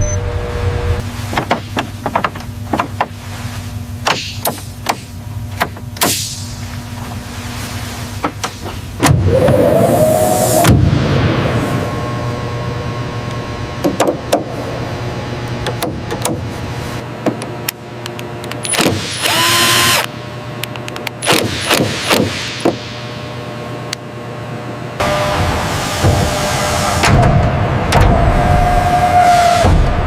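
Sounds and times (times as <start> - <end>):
steady mechanical hum: 0.0 - 30.0
loud hiss with rising tone: 9.2 - 13.8, 25.0 - 30.0.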